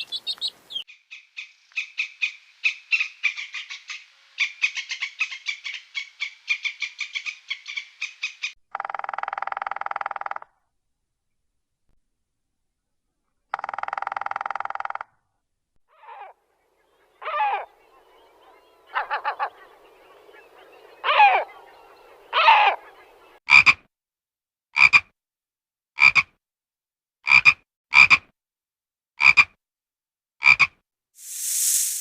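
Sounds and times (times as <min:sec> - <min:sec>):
animal calls: 0:15.9 - 0:23.8.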